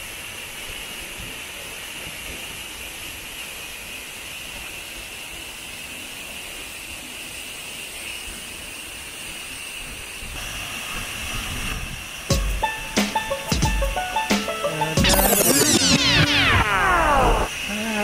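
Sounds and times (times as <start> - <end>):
waterfall rushing: 12.0 - 18.0.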